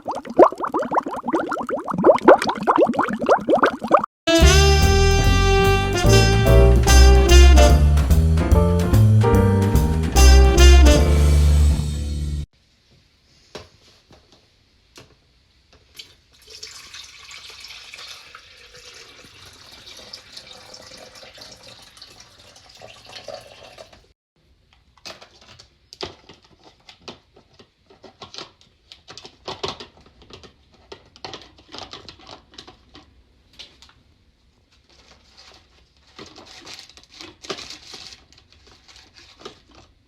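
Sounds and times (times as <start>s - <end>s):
water running: 0.0s - 4.1s, 16.4s - 24.0s.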